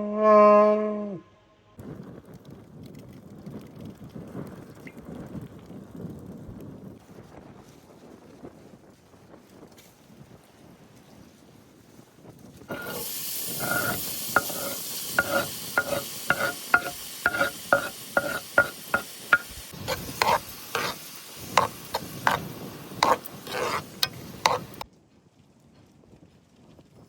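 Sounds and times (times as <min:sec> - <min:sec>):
food sizzling in a frying pan: 0:12.7 - 0:24.8
metal utensil scraping a pan: 0:12.7 - 0:24.8.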